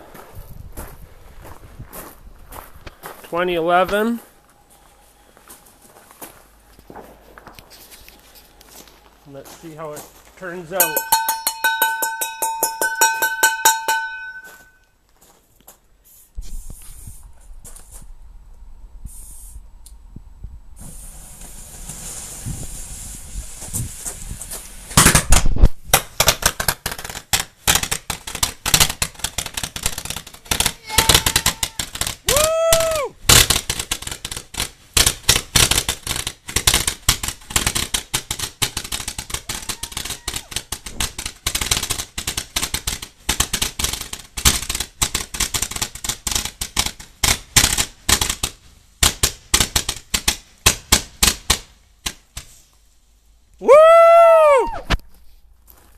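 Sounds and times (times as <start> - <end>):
firework firing sharp pops: 20.8 - 52.7.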